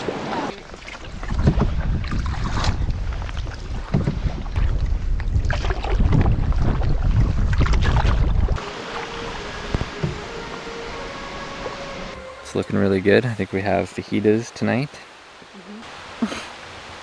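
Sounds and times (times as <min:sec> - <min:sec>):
paddle splashes against canoe: 0:00.0 - 0:11.0
wind buffeting microphone: 0:00.6 - 0:08.6.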